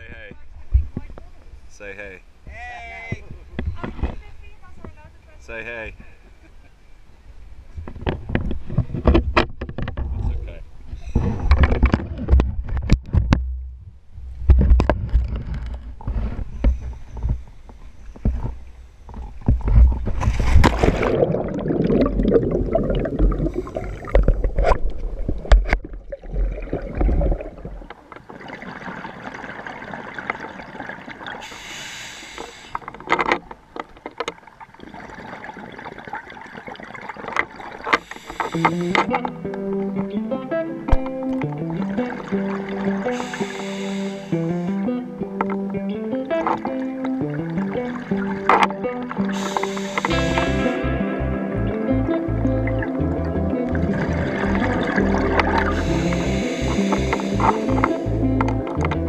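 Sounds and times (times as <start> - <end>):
exhaled bubbles: 20.0 - 31.5, 49.1 - 50.8, 52.2 - 59.0
diver breathing through regulator: 22.7 - 24.2, 31.4 - 32.9, 38.0 - 39.1, 42.9 - 44.9, 49.2 - 50.8, 55.4 - 58.2.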